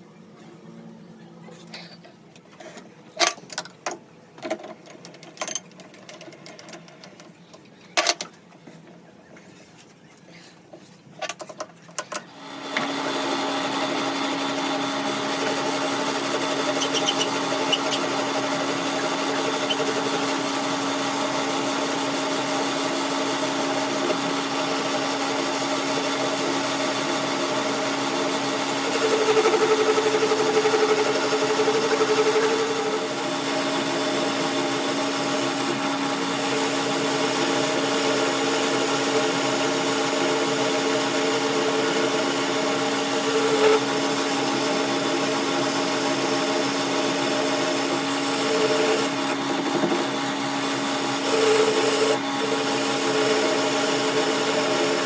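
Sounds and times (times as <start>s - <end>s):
power tool running on metal: 12.4s - 55.0s.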